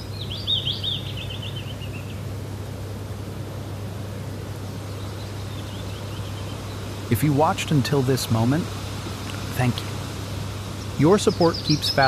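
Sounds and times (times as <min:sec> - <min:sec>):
small bird twittering: 0:00.0 - 0:02.2, 0:08.8 - 0:12.0
low background noise: 0:00.0 - 0:12.0.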